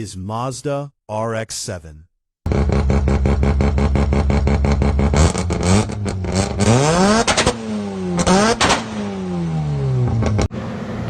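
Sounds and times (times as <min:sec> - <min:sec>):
rotary engine idling and revving: 0:02.5 - 0:11.0.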